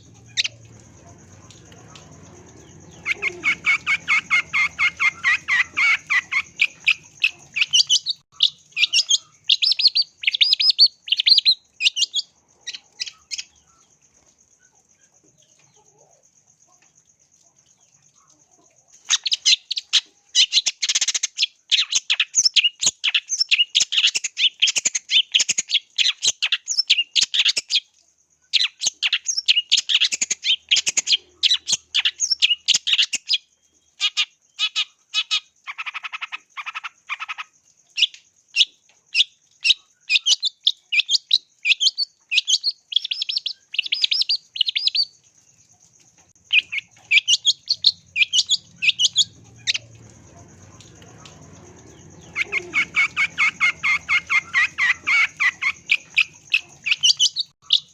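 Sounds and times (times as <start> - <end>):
bird singing sharp chirps: 0.0 - 13.5, 46.5 - 57.9.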